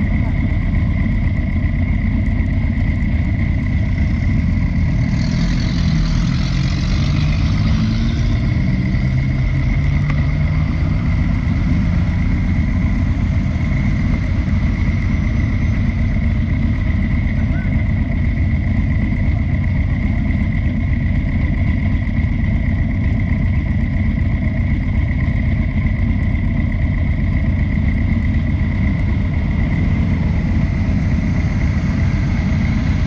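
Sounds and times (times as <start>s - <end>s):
motorcycle engine rumbling: 0.0s - 33.0s.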